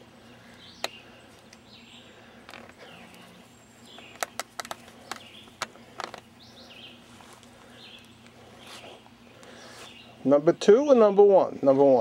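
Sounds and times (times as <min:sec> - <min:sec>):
low steady hum: 0:00.0 - 0:12.0
sharp clicks: 0:03.8 - 0:06.2.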